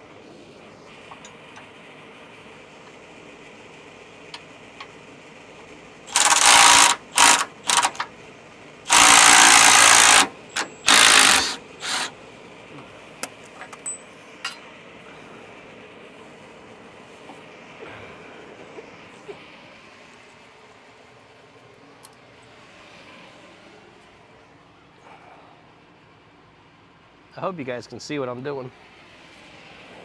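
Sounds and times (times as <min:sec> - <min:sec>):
power tool bursts: 0:06.1 - 0:08.1, 0:08.9 - 0:12.2.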